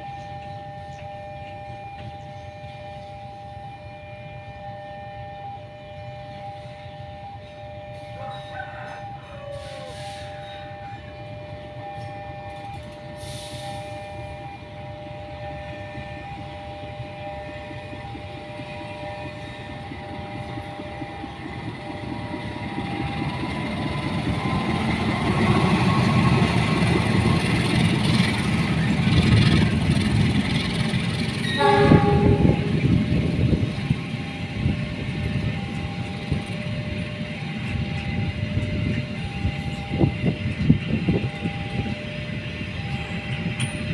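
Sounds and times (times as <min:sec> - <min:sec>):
train horn blast: 0:00.0 - 0:22.5, 0:31.3 - 0:43.5
train rumbling past: 0:00.0 - 0:43.9.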